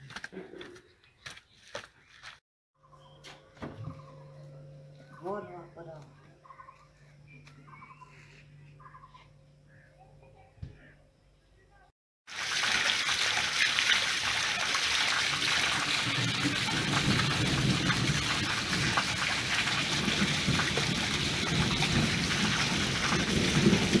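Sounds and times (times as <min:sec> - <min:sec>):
rain falling on concrete and puddles: 0:12.3 - 0:24.0.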